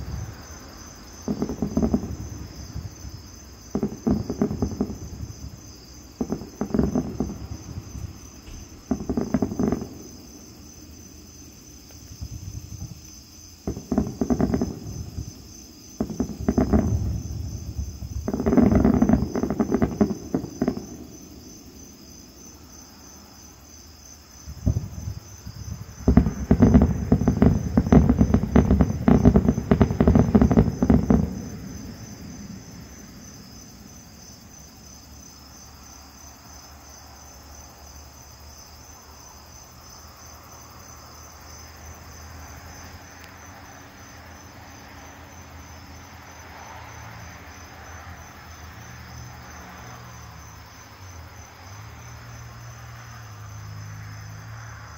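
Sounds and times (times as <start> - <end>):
fireworks booming and crackling: 0.0 - 22.8, 24.3 - 35.0
night insects trilling: 0.0 - 54.9.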